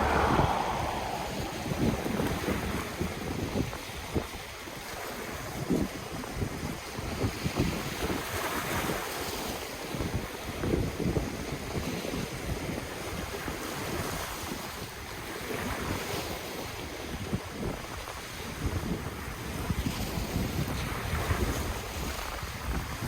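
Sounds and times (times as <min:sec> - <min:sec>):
ocean waves washing on shore: 0:00.0 - 0:03.0
wind buffeting microphone: 0:00.0 - 0:03.8.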